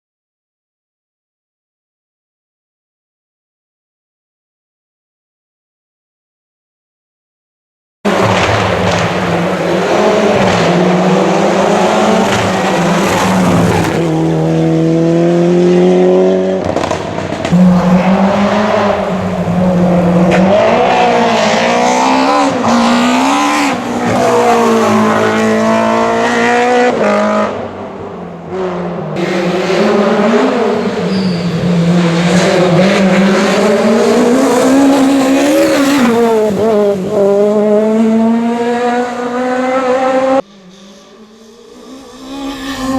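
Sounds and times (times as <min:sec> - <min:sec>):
rally car engines revving: 0:08.1 - 0:42.9.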